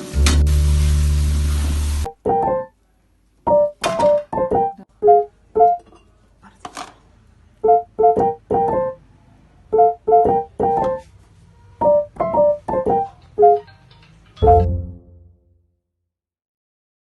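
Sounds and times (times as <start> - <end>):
keyboard playing background music: 0.0 - 2.8, 3.5 - 5.8, 7.7 - 9.0, 9.8 - 11.0, 11.8 - 15.4.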